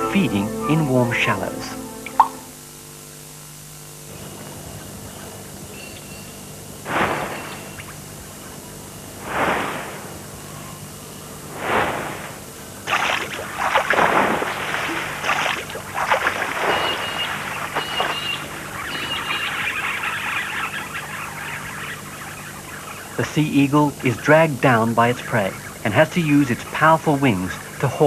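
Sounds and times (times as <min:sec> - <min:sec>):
wings beating: 0:06.9 - 0:27.8
heavy irregular splashing: 0:11.6 - 0:18.4
water washing: 0:11.6 - 0:19.4.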